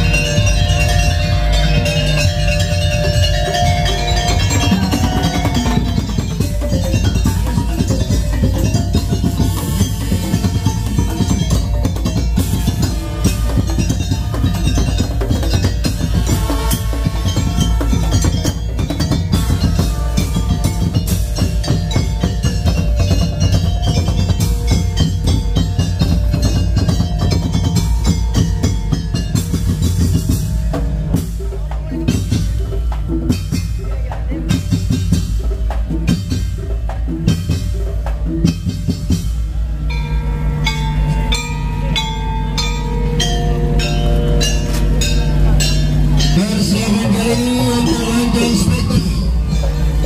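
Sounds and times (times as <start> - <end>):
wooden slit-drum strikes: 0.0 - 39.7
drums over heavy bass: 0.0 - 50.0
ringing metal tones: 0.0 - 50.0.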